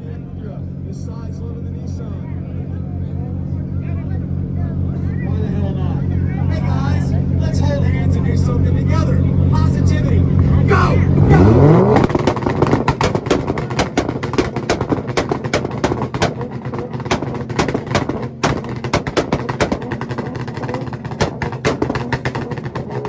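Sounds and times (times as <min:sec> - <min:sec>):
car engine drone: 0:00.0 - 0:23.0
exhaust pops and bangs: 0:06.0 - 0:23.0.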